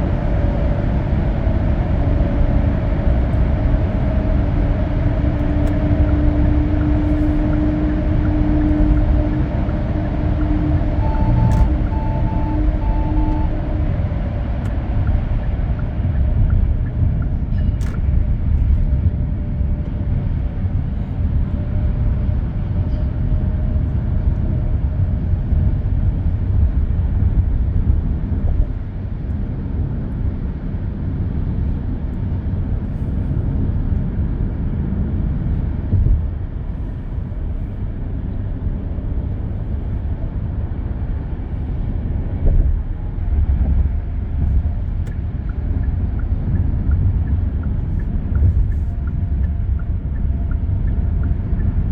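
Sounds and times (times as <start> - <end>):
car engine: 0.0 - 31.4
short electronic beeps: 10.5 - 13.8.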